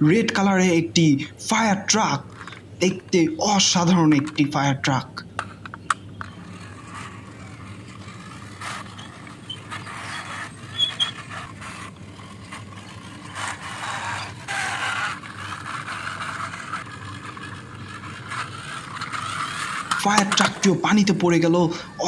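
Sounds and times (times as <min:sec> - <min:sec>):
toy wheels scraping on wall: 0:01.5 - 0:04.5, 0:05.2 - 0:21.9
small clicks and knocks: 0:05.3 - 0:06.5.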